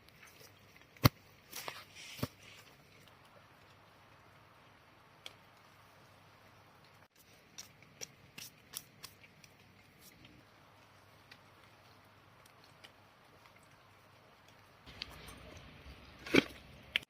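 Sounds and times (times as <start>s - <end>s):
outdoor background hiss: 0.0s - 17.0s
light sharp clicks and crackles: 5.1s - 5.8s, 6.8s - 15.7s.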